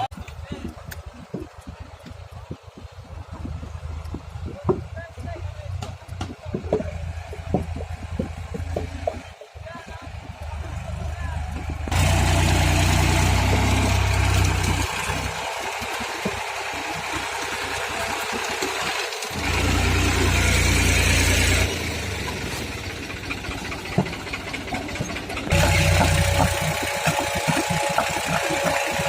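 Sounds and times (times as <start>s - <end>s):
tractor engine working: 0.0s - 29.0s
rattling and clicks: 21.7s - 29.0s.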